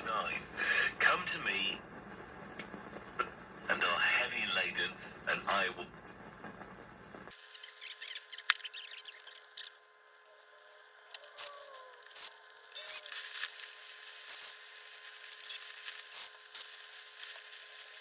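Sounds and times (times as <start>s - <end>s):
radio static crackling and clicks: 0.0s - 18.0s
radio whistle tones sliding: 11.2s - 13.4s.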